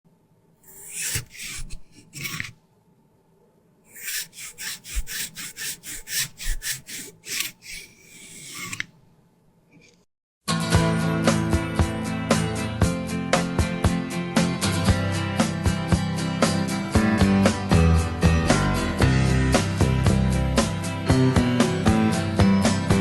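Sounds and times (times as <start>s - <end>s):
rasping scraping strokes: 0.6s - 2.6s, 3.9s - 9.0s.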